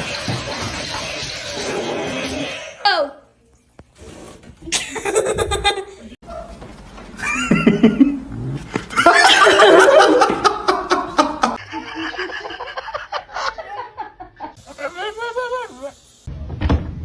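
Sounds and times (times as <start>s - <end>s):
people laughing loudly: 4.7s - 6.1s, 7.2s - 8.2s, 8.8s - 15.7s.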